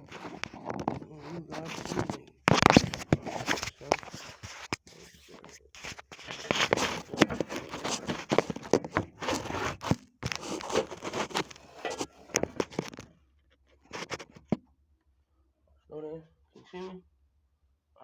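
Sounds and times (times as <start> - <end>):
scuffing and rustling: 0.1 - 13.0.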